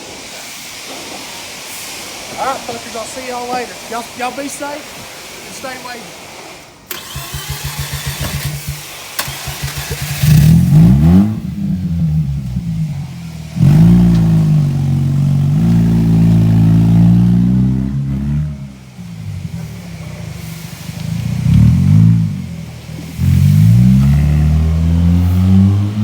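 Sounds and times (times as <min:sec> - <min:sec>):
rotary engine revving: 0:06.9 - 0:26.0.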